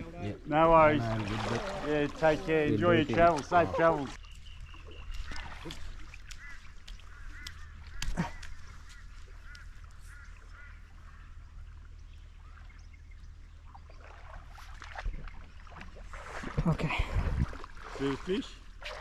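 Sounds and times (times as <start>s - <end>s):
birds chirping: 0.0s - 14.1s.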